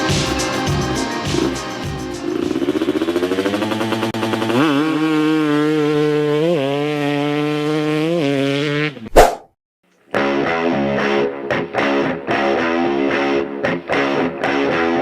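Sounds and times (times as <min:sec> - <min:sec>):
dirt bike engine revving: 0:00.0 - 0:09.1.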